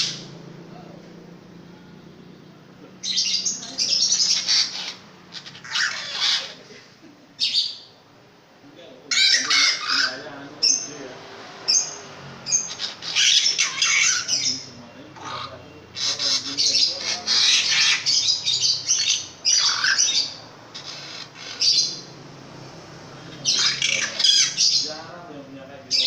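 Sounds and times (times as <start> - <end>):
bird calling harshly: 0.0 - 0.4, 3.0 - 6.7, 7.4 - 8.0, 9.1 - 10.9, 11.7 - 22.2, 23.1 - 25.0.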